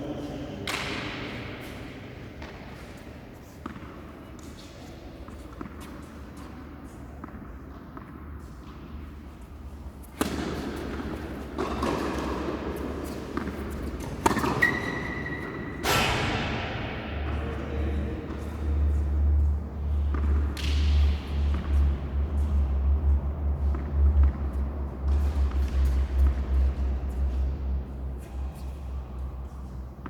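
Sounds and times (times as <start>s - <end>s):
background noise: 0.0s - 30.0s
tennis balls struck with rackets: 10.1s - 17.3s, 20.0s - 21.8s.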